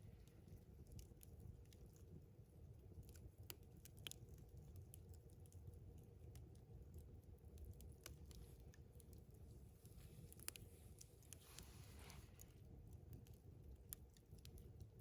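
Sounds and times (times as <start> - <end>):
campfire crackling: 0.0 - 15.0
low steady rumble: 4.4 - 15.0.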